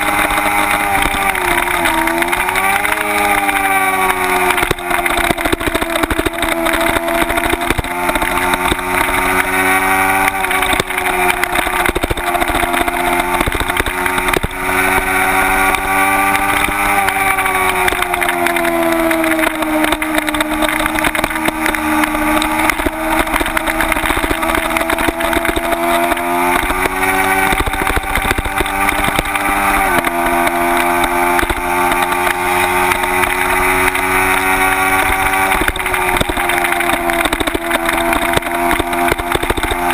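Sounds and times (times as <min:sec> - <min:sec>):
motorcycle engine revving: 0:00.0 - 0:39.9
wind rush on microphone: 0:04.6 - 0:30.4.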